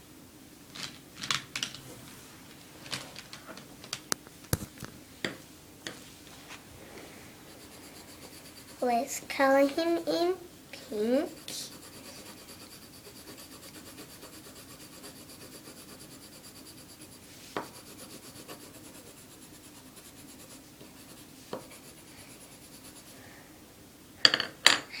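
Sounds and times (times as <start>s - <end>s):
pencil scribbling on paper: 7.4s - 9.0s, 11.2s - 23.2s.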